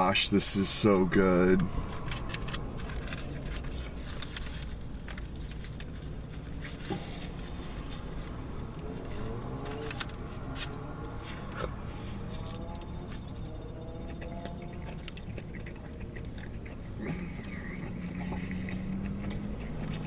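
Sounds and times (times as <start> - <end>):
low background hum: 0.0 - 20.0
foil wrapper crinkling: 1.5 - 10.8.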